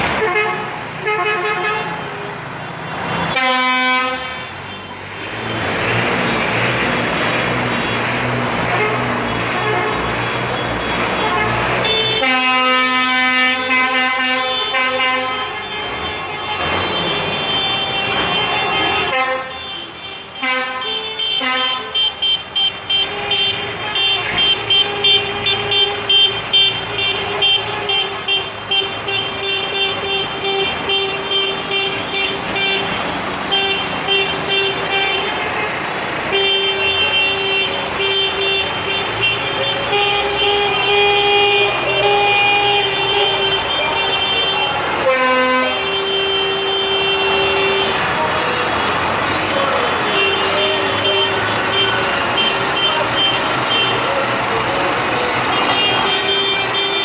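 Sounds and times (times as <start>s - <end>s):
tractor horns tooting: 0.0s - 57.0s
engines running: 4.4s - 14.3s, 22.4s - 57.0s.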